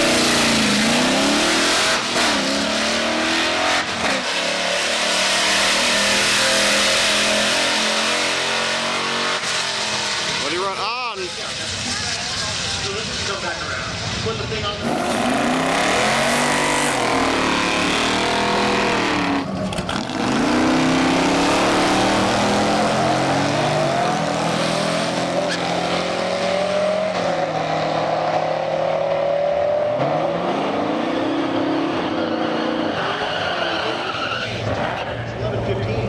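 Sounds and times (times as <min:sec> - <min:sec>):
car engine running loudly: 0:00.0 - 0:27.9.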